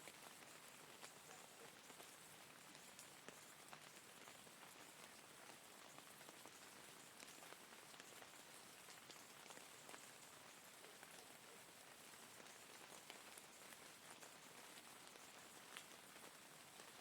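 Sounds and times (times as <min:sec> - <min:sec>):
faint rain: 0:00.0 - 0:17.0.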